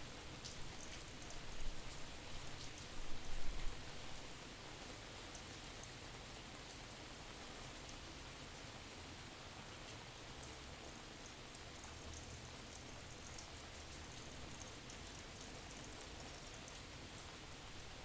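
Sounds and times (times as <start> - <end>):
faint rain: 0.0 - 18.0
raindrop ticks: 0.4 - 3.6, 11.2 - 16.9.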